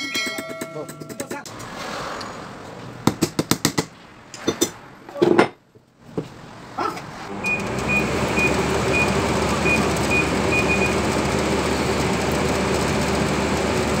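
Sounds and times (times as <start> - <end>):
electric fan whirring: 7.0 - 14.0.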